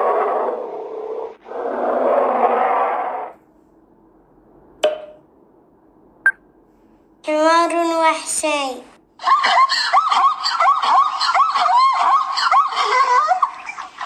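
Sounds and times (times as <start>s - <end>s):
bear growling: 0.0s - 3.4s.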